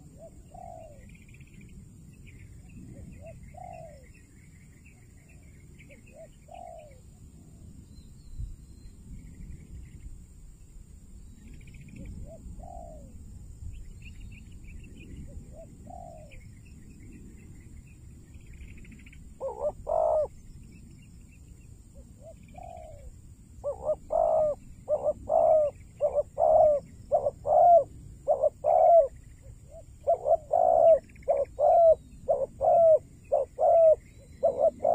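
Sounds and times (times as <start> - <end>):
doves cooing: 0.0 - 1.1, 2.9 - 4.1, 5.9 - 7.0, 12.2 - 13.2, 15.3 - 16.4, 19.4 - 20.4, 22.0 - 34.9
small birds chirping: 13.7 - 34.9.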